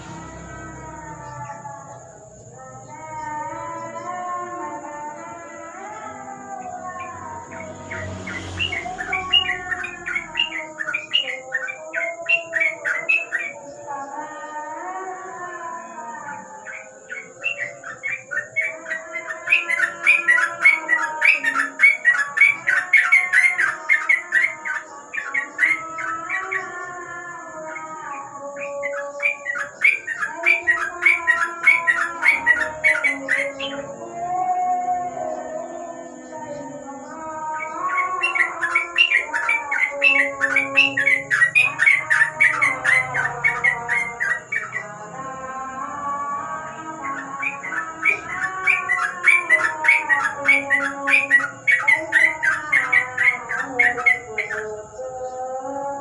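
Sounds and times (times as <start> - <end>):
bird chirping rapidly: 7.0 - 13.7, 16.5 - 27.0, 28.5 - 33.9, 37.4 - 45.1, 47.0 - 55.0
bulbuls chattering: 28.6 - 55.3.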